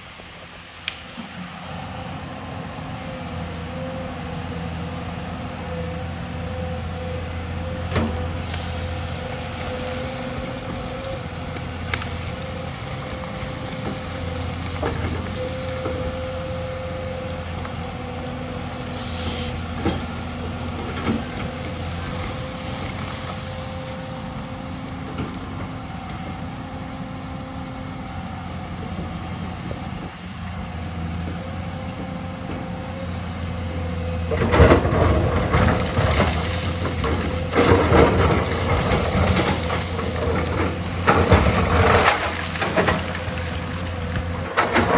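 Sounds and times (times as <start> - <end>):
excavator diesel engine running: 0.0 - 44.9
rock and soil crunching: 6.4 - 26.4, 29.3 - 44.9.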